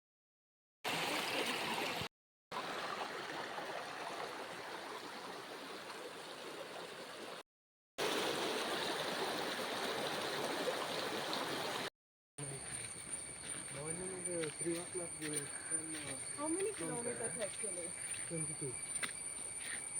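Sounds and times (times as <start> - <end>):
stream water rushing: 2.6 - 7.4, 8.0 - 11.9.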